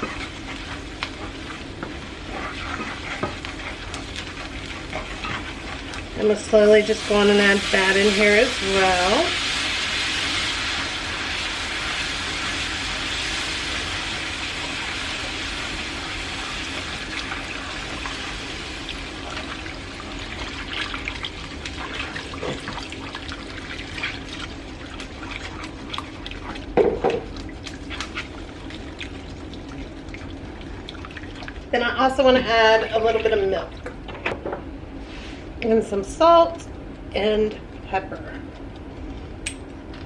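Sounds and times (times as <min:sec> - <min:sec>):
broth hissing in hot pan: 0:00.0 - 0:25.0
utensil stirring against pan: 0:00.0 - 0:31.7.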